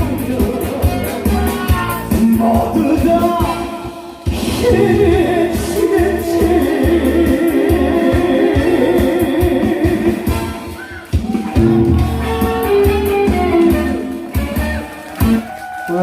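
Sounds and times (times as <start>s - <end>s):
person singing: 0.0s - 10.8s
drum beat: 0.0s - 15.6s
live band playing: 0.0s - 16.0s.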